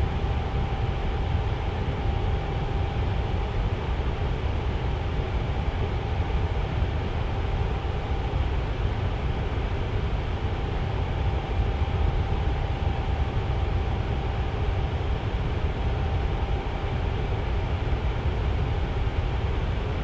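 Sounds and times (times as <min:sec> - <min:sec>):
faint steady hum: 0:00.0 - 0:20.0
tower fan running: 0:00.0 - 0:20.0.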